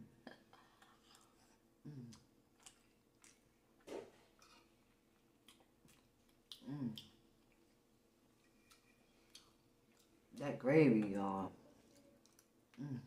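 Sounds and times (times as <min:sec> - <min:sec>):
chewing: 0:00.5 - 0:07.8, 0:08.4 - 0:10.4, 0:11.7 - 0:13.0.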